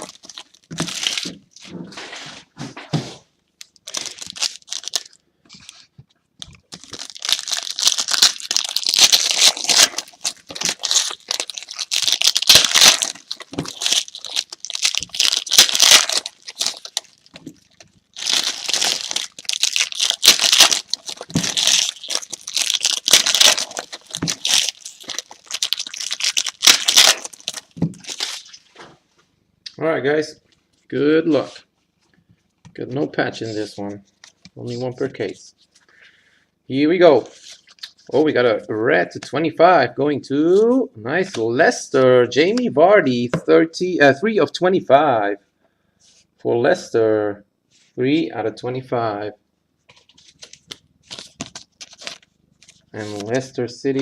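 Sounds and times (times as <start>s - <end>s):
wrappers tearing and crinkling: 0.0s - 1.4s, 3.6s - 28.6s, 50.0s - 54.0s.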